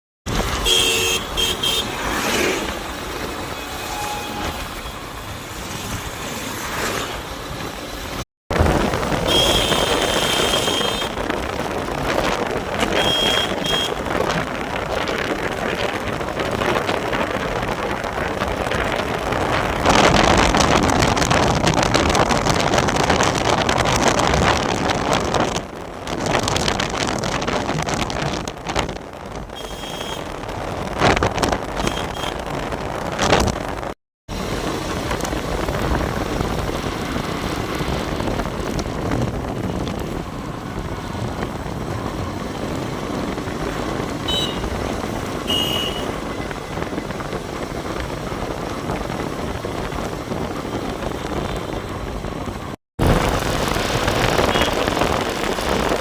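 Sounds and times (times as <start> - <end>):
engine tyre and wind noise: 0.2 - 56.0
high horn toots: 0.4 - 2.2, 3.4 - 5.2, 9.2 - 11.3, 12.8 - 14.1, 29.6 - 30.4, 31.8 - 32.5, 44.2 - 46.3.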